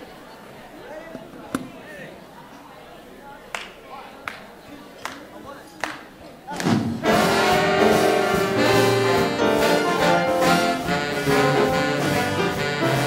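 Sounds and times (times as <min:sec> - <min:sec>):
big band swing jazz: 0:06.6 - 0:13.0.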